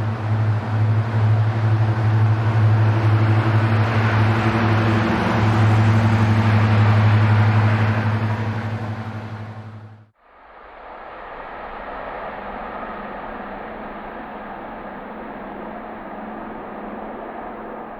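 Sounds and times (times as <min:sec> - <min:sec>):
vehicle engine droning: 0:00.0 - 0:10.1
rushing noise: 0:00.0 - 0:17.9.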